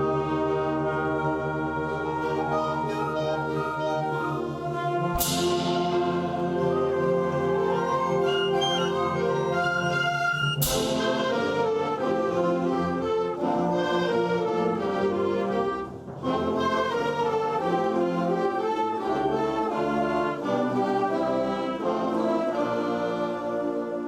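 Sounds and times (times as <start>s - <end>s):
school band playing brass: 0.0s - 24.0s.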